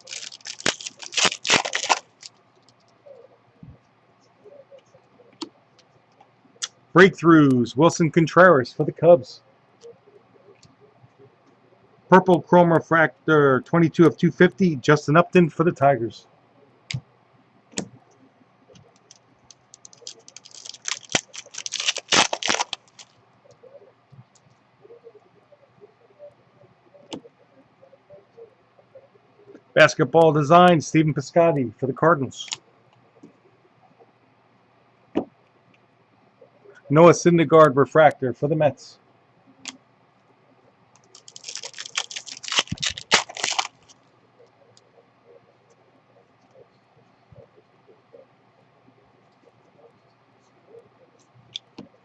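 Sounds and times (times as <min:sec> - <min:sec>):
trading cards clicking and crinkling: 0:00.0 - 0:03.1, 0:17.7 - 0:24.6, 0:40.9 - 0:44.1.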